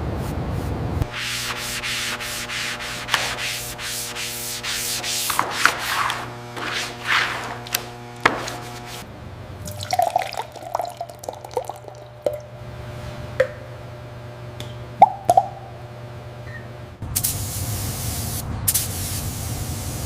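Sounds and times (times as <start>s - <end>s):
steady low hum: 0.0s - 18.7s
abrasive rubbing strokes: 1.1s - 9.1s
liquid dripping: 9.6s - 12.6s.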